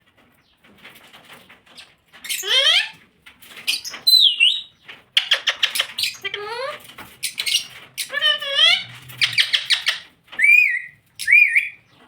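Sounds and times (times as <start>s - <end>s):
parrot calling and whistling: 2.3s - 3.0s, 3.8s - 11.8s
parrot clicking chatter: 5.2s - 11.8s.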